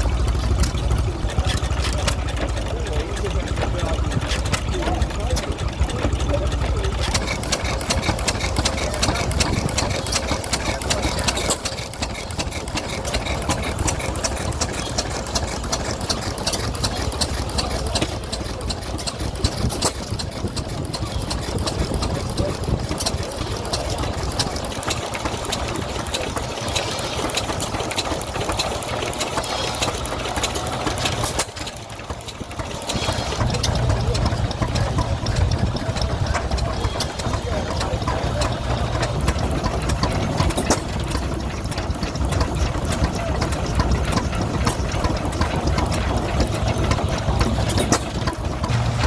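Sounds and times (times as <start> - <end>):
engine running with clatter: 0.0 - 49.0.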